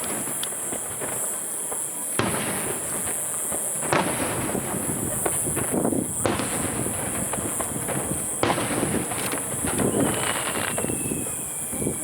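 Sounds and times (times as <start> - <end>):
firework booms: 0.0 - 12.0
firework crackling: 0.0 - 12.0
thin whistle sliding down: 9.7 - 12.0.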